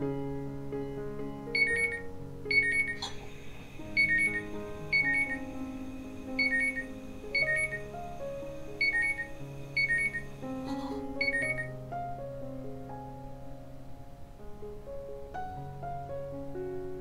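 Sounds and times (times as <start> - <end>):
background music: 0.0 - 17.0
two-note electronic alarm beeps: 1.6 - 3.1, 3.9 - 5.6, 6.3 - 8.1, 8.7 - 10.4, 11.1 - 11.8
gas flame hiss: 2.9 - 11.5.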